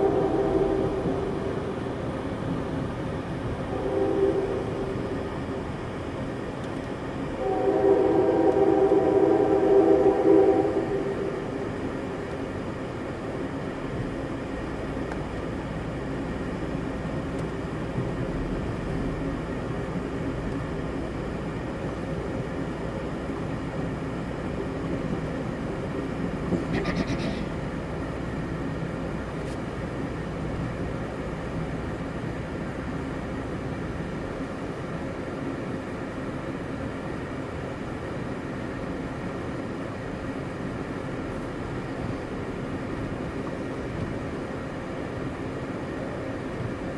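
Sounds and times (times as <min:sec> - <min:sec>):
train horn: 0:00.0 - 0:01.4, 0:03.7 - 0:05.0, 0:07.4 - 0:11.5
train wheels rumbling on rail: 0:00.0 - 0:46.9.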